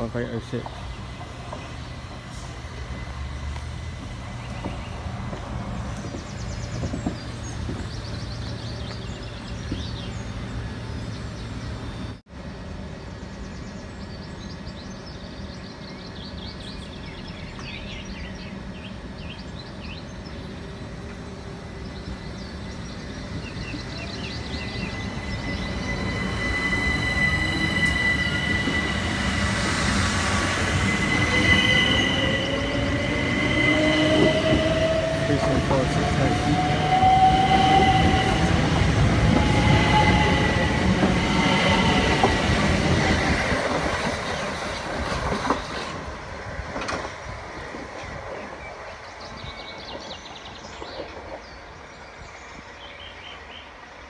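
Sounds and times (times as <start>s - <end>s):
wheel squeal on rails: 24.5s - 42.4s.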